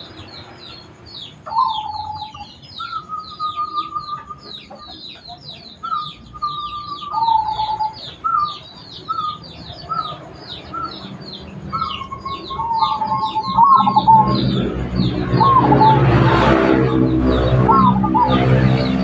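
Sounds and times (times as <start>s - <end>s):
small birds twittering: 0.0s - 19.0s
doves cooing: 1.5s - 19.0s
low steady drone: 12.1s - 19.0s.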